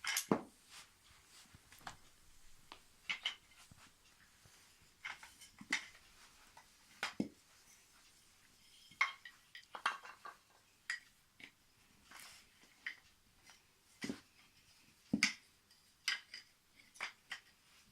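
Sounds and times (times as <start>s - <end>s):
wooden toy track pieces clacking: 9.0s - 11.6s, 15.1s - 17.6s.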